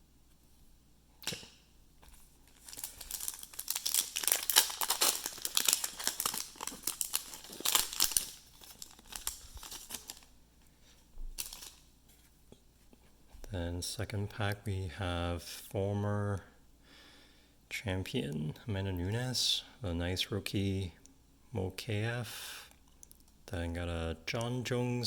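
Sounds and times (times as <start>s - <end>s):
card pack wrapper crinkling: 2.1s - 10.3s, 11.4s - 11.8s.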